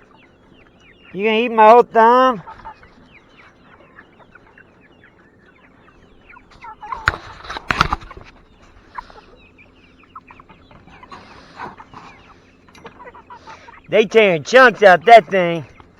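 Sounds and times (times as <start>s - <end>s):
chickens clucking and calling: 0.0s - 15.9s.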